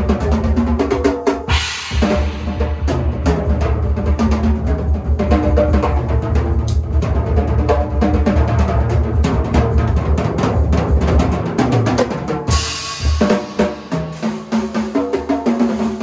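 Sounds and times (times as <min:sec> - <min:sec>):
drum kit played fast: 0:00.0 - 0:16.0
cymbal crash: 0:01.5 - 0:03.6, 0:12.5 - 0:15.1.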